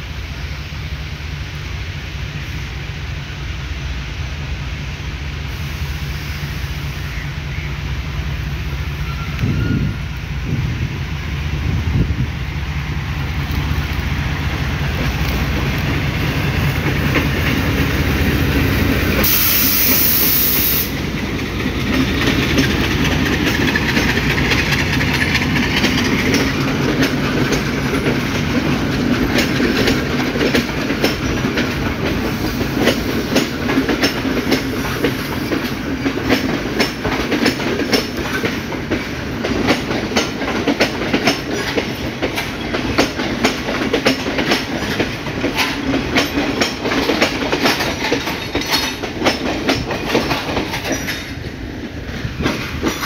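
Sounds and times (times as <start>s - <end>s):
train rumble: 0.0s - 53.0s
train wheels clattering over joints: 13.1s - 53.0s.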